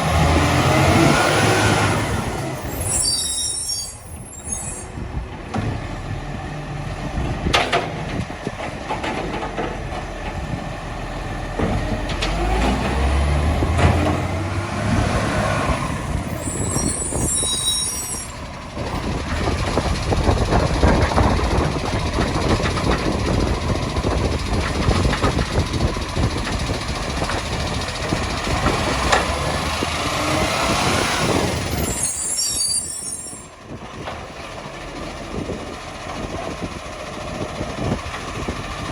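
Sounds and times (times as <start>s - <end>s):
diesel engine running under load: 0.0s - 3.3s, 4.9s - 38.9s
hydraulics whining: 0.0s - 38.9s
air brakes hissing: 2.6s - 5.0s, 16.3s - 18.4s.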